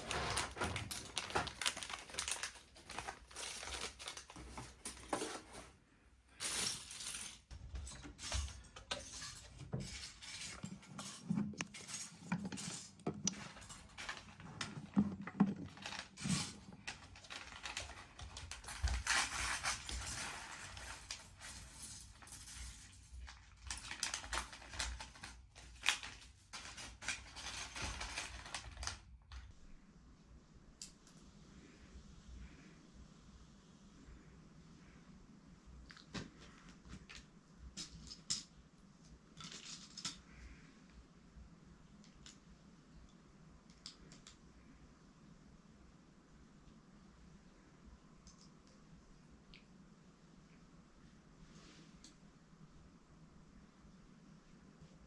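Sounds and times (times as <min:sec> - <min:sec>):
rustling: 0:00.0 - 0:29.1.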